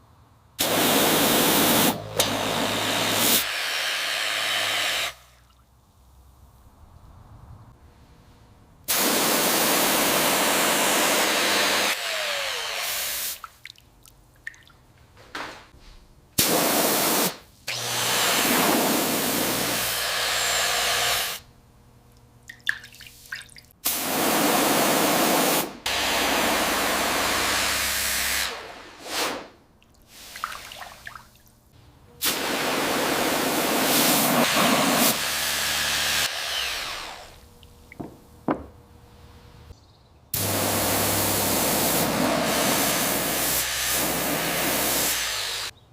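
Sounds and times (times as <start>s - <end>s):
high-pressure spray hissing: 0.6s - 5.3s, 8.9s - 12.0s, 16.4s - 17.4s, 18.3s - 21.4s, 23.8s - 29.4s, 32.2s - 36.4s, 40.4s - 45.7s
water dripping: 5.3s - 5.8s, 13.4s - 14.9s, 22.1s - 23.8s, 29.8s - 31.6s.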